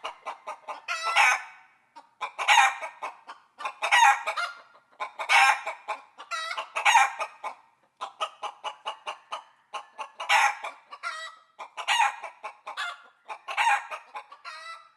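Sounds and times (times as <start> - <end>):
chicken squawking calls: 0.0 - 1.6, 3.6 - 4.6, 5.2 - 5.7, 10.2 - 14.8
chickens clucking: 0.0 - 14.9.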